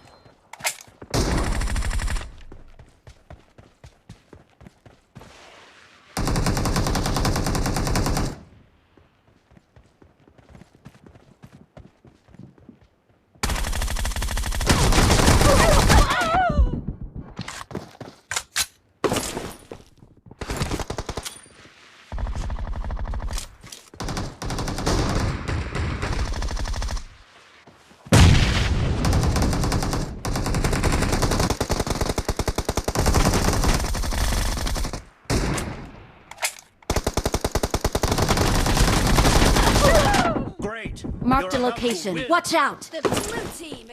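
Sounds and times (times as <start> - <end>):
video game automatic gunfire: 13.4 - 16.0, 24.0 - 27.0, 29.0 - 35.0, 36.9 - 40.2.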